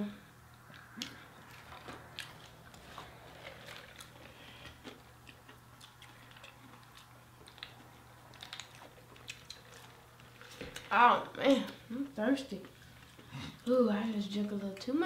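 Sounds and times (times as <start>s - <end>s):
faint chewing with mouth clicks: 0.4s - 15.0s.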